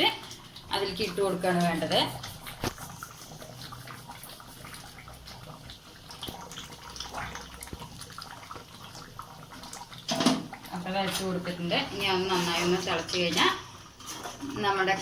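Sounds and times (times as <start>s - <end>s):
gravy simmering and bubbling: 0.0s - 15.0s.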